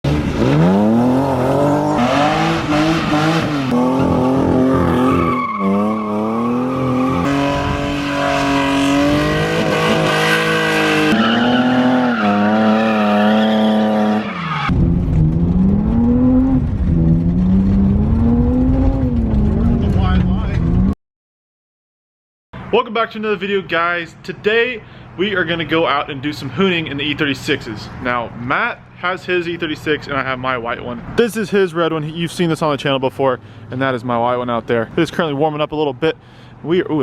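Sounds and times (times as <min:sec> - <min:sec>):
car engines revving: 0:00.0 - 0:20.9
tires squealing: 0:00.1 - 0:20.8
low rumble: 0:14.7 - 0:21.0.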